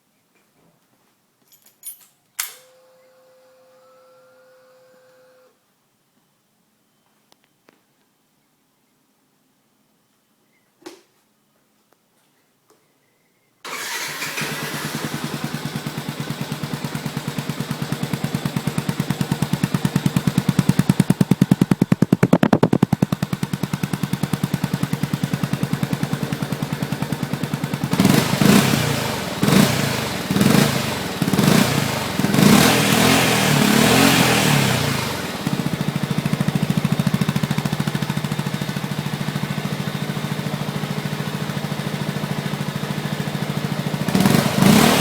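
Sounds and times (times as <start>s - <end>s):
motorcycle engine idling and revving: 13.7s - 45.0s.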